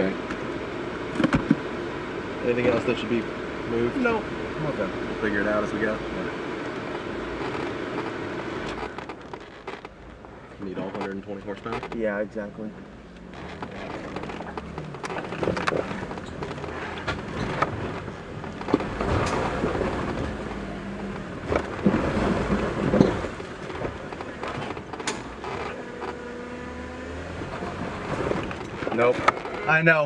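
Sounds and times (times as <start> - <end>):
off-road vehicle engine rumble: 0.0 - 30.0.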